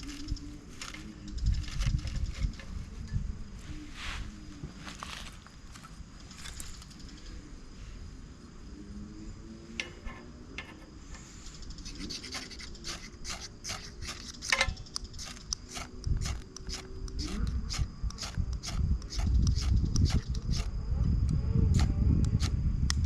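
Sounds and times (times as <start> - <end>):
fire-starter rod scraping: 0.0 - 3.2, 9.8 - 20.7.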